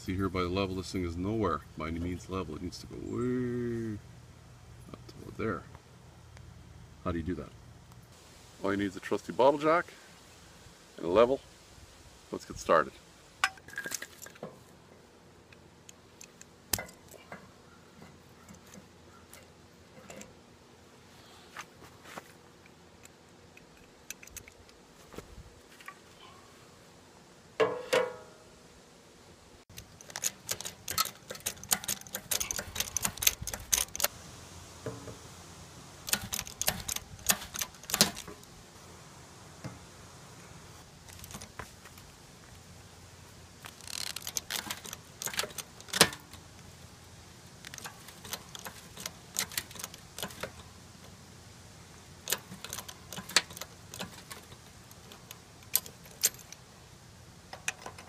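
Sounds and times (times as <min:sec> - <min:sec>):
sharp metallic clicks and clinks: 0:29.7 - 0:34.1, 0:36.0 - 0:38.4, 0:43.7 - 0:46.4, 0:47.6 - 0:50.6, 0:52.2 - 0:56.6.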